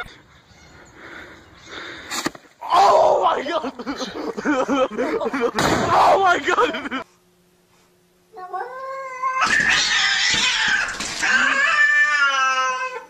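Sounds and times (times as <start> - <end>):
cats yowling and screeching: 8.4 - 13.0.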